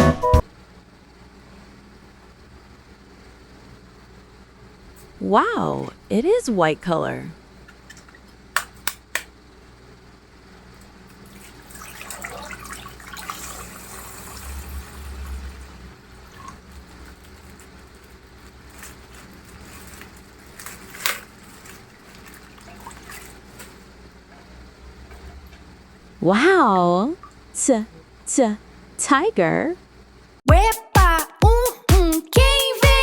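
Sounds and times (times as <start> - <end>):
water trickling and splashing: 11.2 - 16.7, 22.0 - 23.6.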